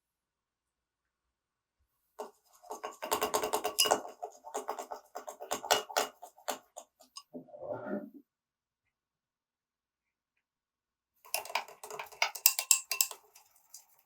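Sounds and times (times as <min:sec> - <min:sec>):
utensil scraping a container: 0:02.2 - 0:07.2, 0:11.3 - 0:14.0.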